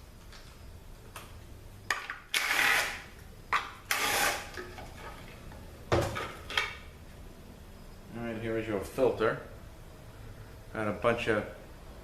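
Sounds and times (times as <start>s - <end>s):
power ratchet running: 2.3s - 3.0s, 3.9s - 4.5s.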